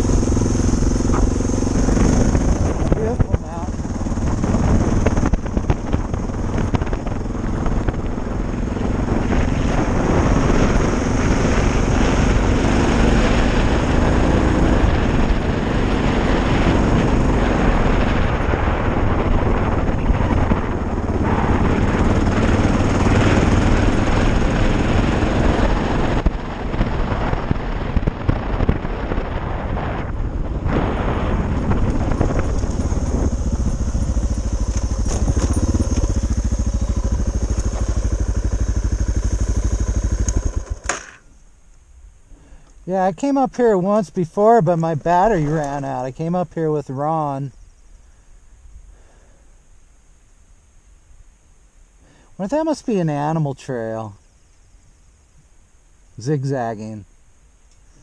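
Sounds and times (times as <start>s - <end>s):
motorcycle engine pulling: 0.0s - 27.5s, 30.4s - 41.4s
wind noise on microphone: 0.0s - 41.1s.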